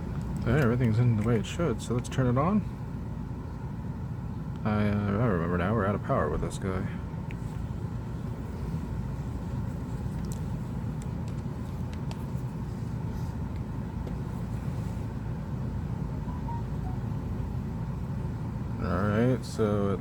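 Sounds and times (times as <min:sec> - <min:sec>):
low background rumble: 0:00.0 - 0:20.0.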